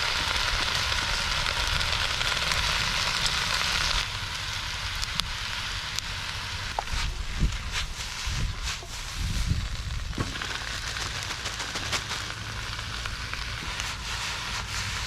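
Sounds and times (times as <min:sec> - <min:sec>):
campfire crackling: 0:00.0 - 0:15.0
fire sizzling hiss: 0:00.0 - 0:15.0
sharp pops of fire: 0:00.0 - 0:15.0.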